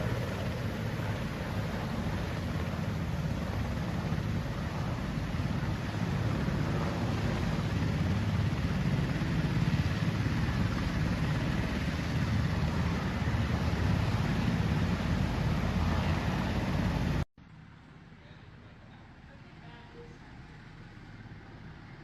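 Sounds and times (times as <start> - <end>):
helicopter rotor and engine: 0.0 - 17.3.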